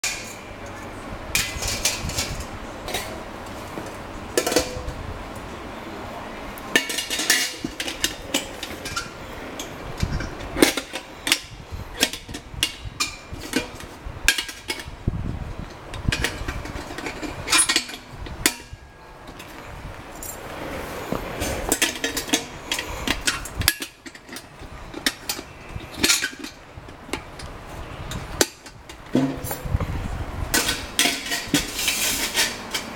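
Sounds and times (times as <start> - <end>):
metal parts clanking: 1.4 - 3.2, 6.7 - 15.0, 15.8 - 20.5, 21.4 - 27.5, 28.1 - 29.8, 30.5 - 32.9.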